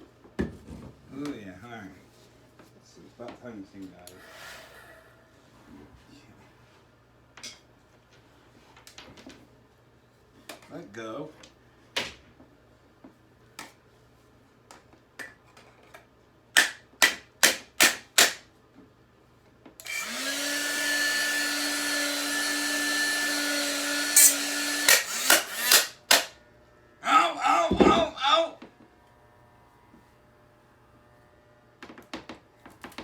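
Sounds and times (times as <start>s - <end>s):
hair dryer running: 19.8s - 26.5s.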